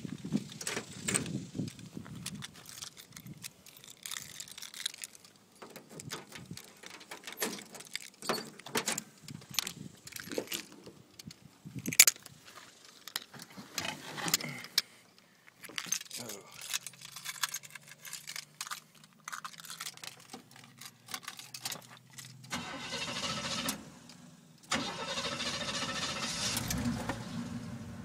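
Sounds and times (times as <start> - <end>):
keys jangling: 0.6 - 12.3, 15.6 - 22.6.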